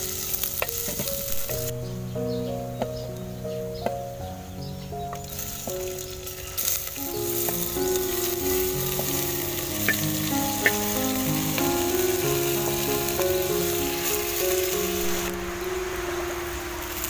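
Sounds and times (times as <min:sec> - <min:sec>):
food sizzling in hot oil: 0:00.0 - 0:01.8, 0:05.1 - 0:17.0
slow background music: 0:00.0 - 0:17.0.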